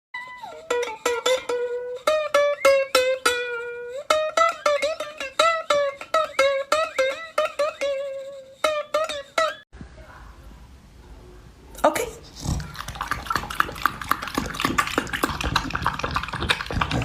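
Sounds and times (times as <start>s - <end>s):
plucked-string tune: 0.2s - 9.6s.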